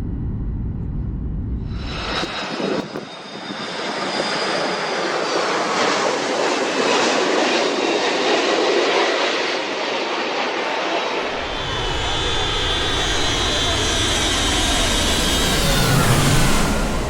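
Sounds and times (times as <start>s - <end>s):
high engine whine: 0.0s - 6.0s, 11.2s - 17.0s
airplane passing overhead: 0.0s - 17.0s.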